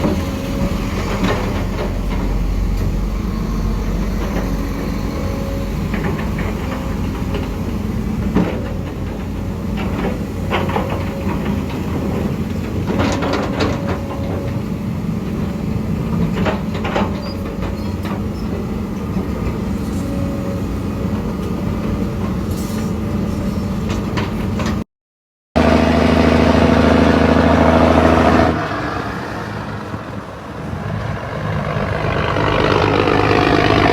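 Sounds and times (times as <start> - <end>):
heavy diesel machinery droning: 0.0 - 24.8, 25.6 - 33.9
metal clanks and knocks: 5.8 - 14.7, 16.1 - 20.1.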